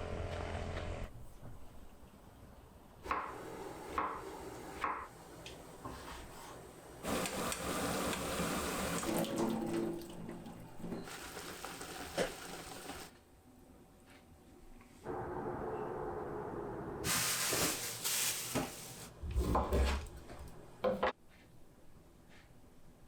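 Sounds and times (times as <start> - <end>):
tap water running into sink: 7.1 - 13.1.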